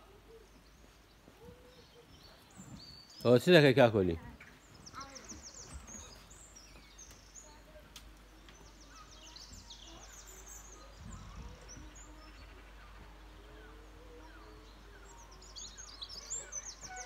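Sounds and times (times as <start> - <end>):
songbird chirping: 0.0 - 17.0
low outdoor hum: 4.2 - 17.0.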